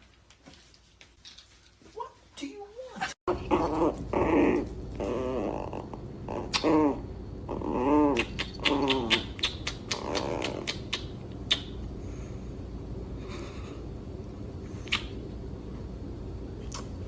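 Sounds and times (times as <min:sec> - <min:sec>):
dog whining: 0:03.3 - 0:10.9.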